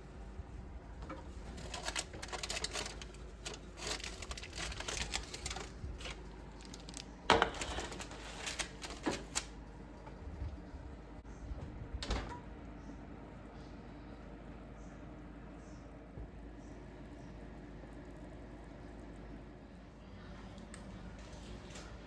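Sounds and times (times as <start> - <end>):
objects clicking and clattering: 1.0 - 9.5.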